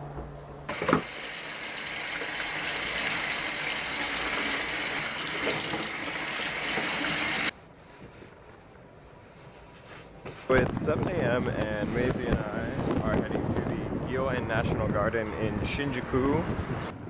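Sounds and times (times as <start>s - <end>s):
running water gushing: 0.7s - 7.5s.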